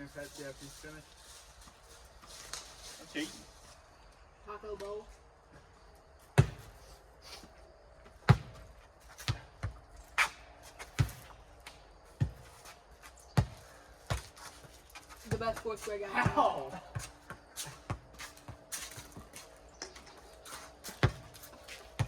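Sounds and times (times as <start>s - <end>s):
ball being kicked: 6.4s - 6.8s, 8.2s - 11.4s, 13.4s - 14.4s.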